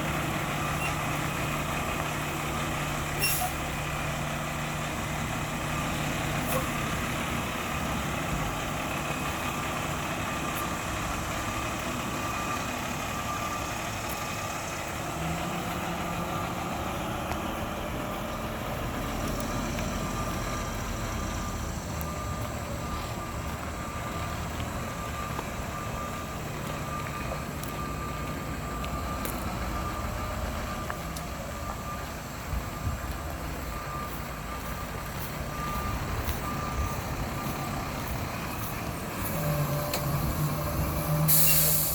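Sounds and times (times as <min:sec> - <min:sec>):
garbage truck diesel engine running: 0:00.0 - 0:41.9
backup alarm beeping: 0:18.1 - 0:41.9.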